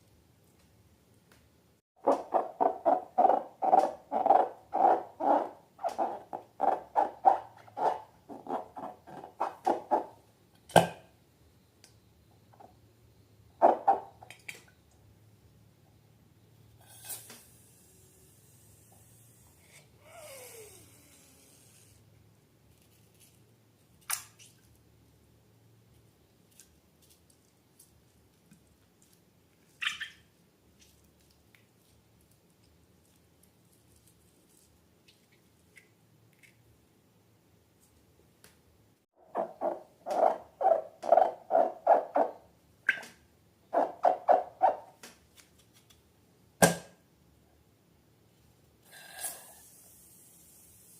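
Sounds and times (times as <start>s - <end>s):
wet slime squelches: 26.4s - 35.9s.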